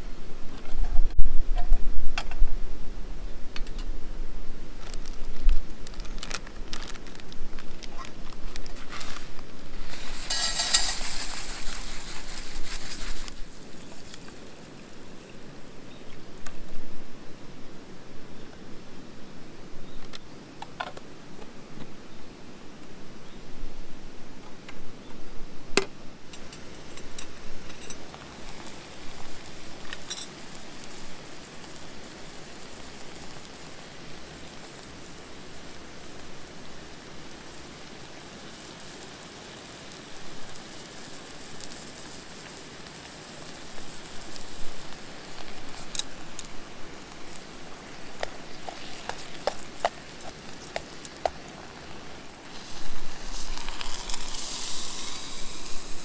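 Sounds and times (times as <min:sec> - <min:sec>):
campfire crackling: 0:03.1 - 0:16.8, 0:26.2 - 0:56.0
fire popping: 0:04.7 - 0:16.8, 0:26.3 - 0:56.0.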